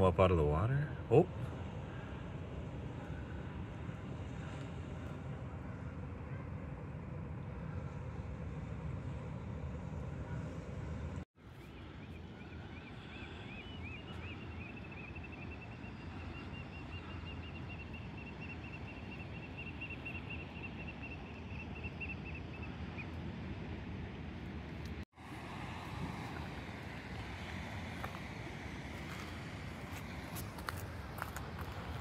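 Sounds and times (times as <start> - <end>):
wind: 0.0 - 32.0
bird calling with trill: 11.7 - 23.1.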